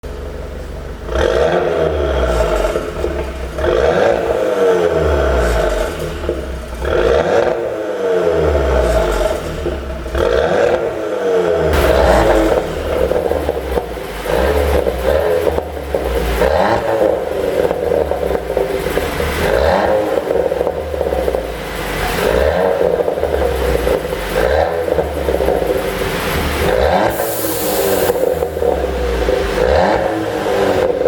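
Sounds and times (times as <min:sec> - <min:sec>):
car engine revving: 0:01.0 - 0:31.0
exhaust pops and crackles: 0:02.2 - 0:04.4, 0:11.7 - 0:27.2.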